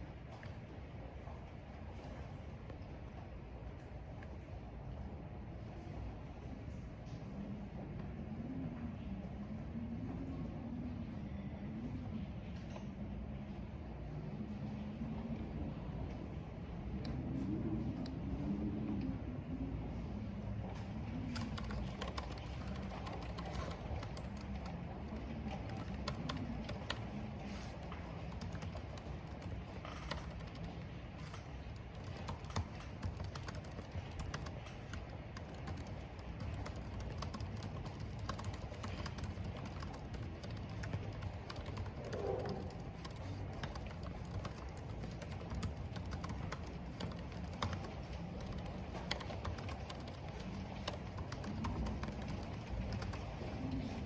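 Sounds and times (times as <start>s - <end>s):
rain: 0.0s - 54.0s
wind: 0.0s - 54.0s
keyboard typing: 21.2s - 54.0s.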